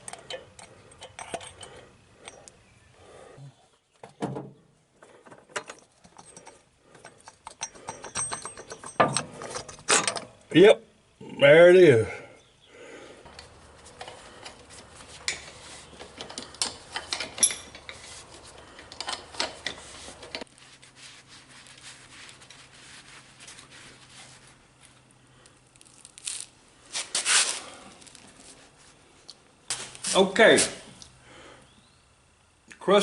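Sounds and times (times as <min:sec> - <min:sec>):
tools and parts clinking: 0:00.0 - 0:02.6, 0:05.2 - 0:10.4, 0:13.3 - 0:20.5.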